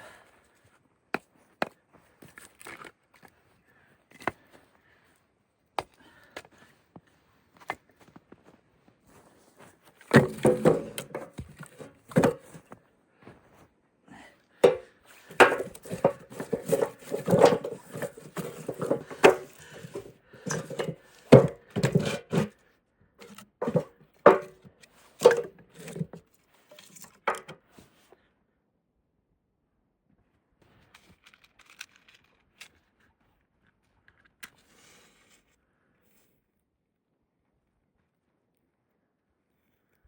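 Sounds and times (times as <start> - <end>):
wooden knocks and clunks: 10.1 - 12.7, 14.6 - 22.5, 23.2 - 26.2, 27.2 - 27.6.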